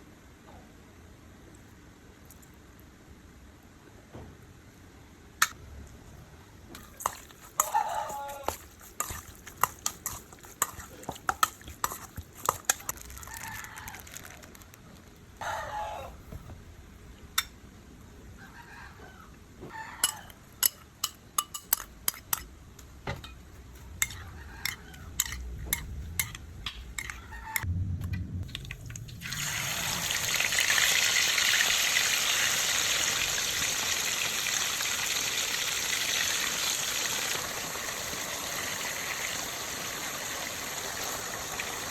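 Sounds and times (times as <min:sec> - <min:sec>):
chickens calling: 0:07.6 - 0:08.5, 0:15.4 - 0:16.2
kitchen utensils clicking: 0:20.0 - 0:22.5.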